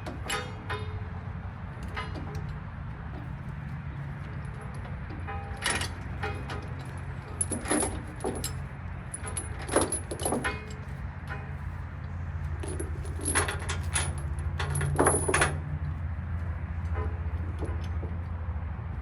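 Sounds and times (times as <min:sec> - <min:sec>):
metallic jingling and clicking: 0:00.0 - 0:01.0, 0:04.2 - 0:11.5, 0:12.5 - 0:16.0
truck engine running low: 0:00.0 - 0:19.0.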